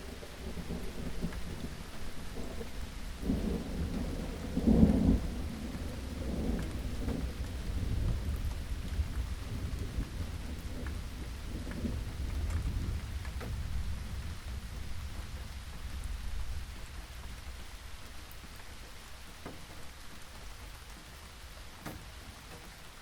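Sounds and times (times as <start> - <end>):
rolling thunder: 0.0 - 17.6
steady rain: 0.0 - 23.0.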